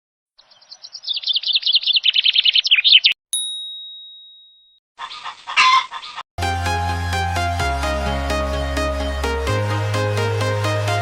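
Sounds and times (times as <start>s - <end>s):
small bird twittering: 0.4s - 3.2s
bell-like ding: 3.3s - 4.8s.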